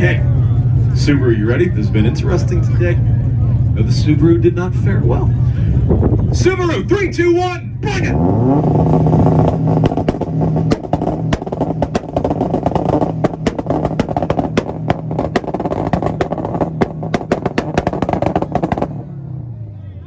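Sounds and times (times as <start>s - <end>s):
car engine at high revs: 7.8s - 19.8s
exhaust pops and bangs: 8.0s - 19.2s.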